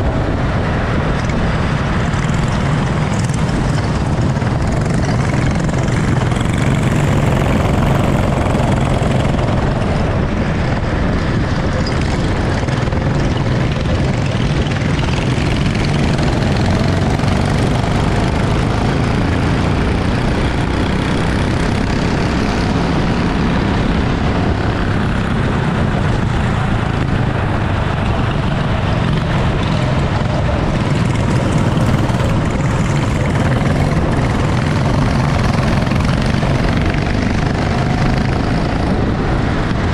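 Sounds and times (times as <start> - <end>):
kart engine droning: 0.0 - 39.9.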